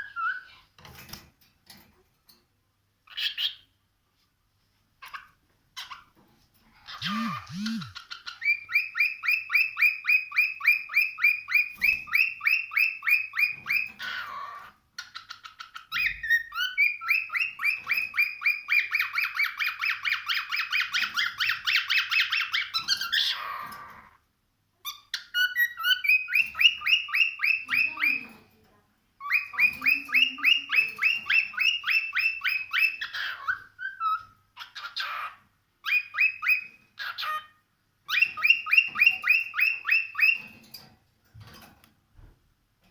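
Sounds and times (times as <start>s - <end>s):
cockatiel rapid chirps: 7.0s - 13.8s.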